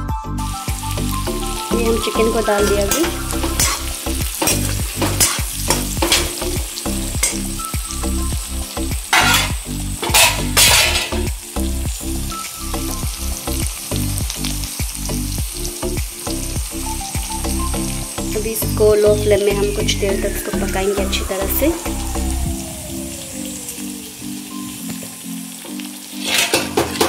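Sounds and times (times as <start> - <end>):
chicken and onions sizzling: 0.4 - 27.0
spatula stirring and scraping: 2.7 - 6.4, 9.1 - 11.2, 26.1 - 27.0.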